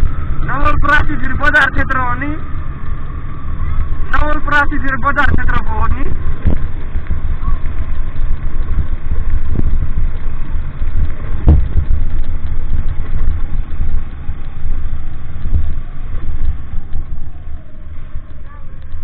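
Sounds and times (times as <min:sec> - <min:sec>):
vehicle engine rumbling: 0:00.0 - 0:19.0
thumps: 0:10.9 - 0:14.6.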